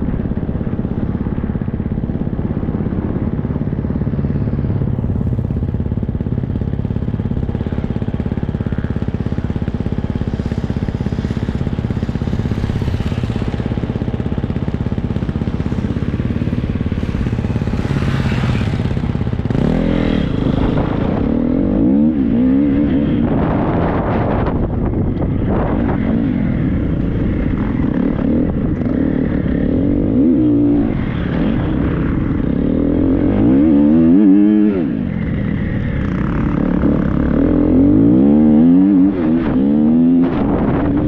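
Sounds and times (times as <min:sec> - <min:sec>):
motocross bike engine revving: 0:10.3 - 0:24.5.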